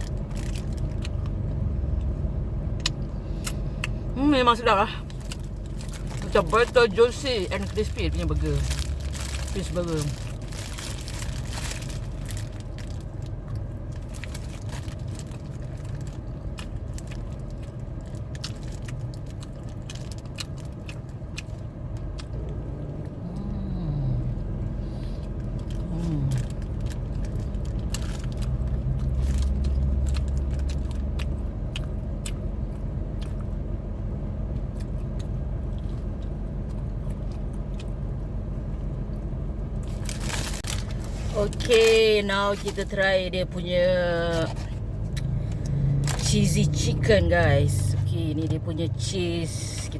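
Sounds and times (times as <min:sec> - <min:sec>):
chewing crispy food: 0:00.0 - 0:04.0, 0:05.0 - 0:43.0
steady low hum: 0:00.0 - 0:49.9.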